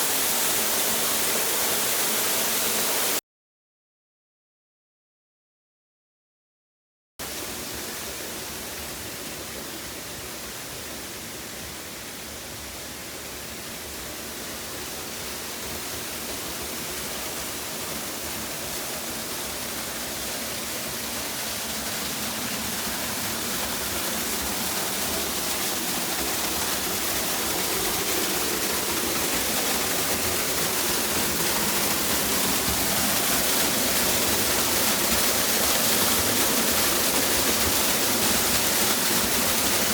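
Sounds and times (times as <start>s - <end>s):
waterfall rushing: 0.0s - 3.2s, 16.0s - 39.9s.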